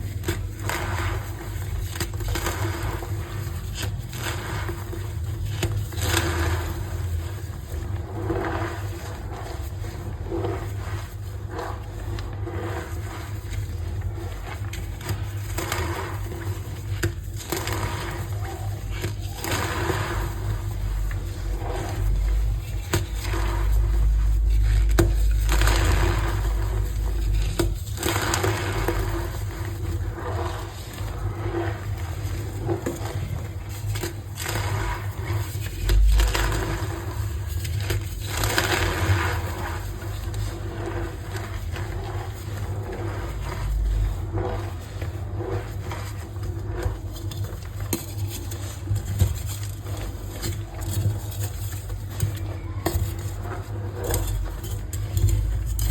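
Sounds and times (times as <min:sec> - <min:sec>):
chalk crushing and crackling: 0:00.0 - 0:55.9
steady low hum: 0:00.0 - 0:55.9.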